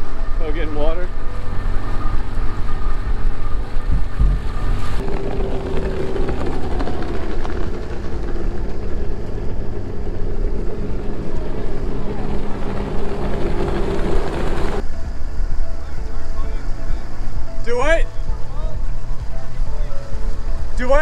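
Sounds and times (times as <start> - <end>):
boat engine running: 0.0 - 21.0
higher steady hum: 0.0 - 21.0.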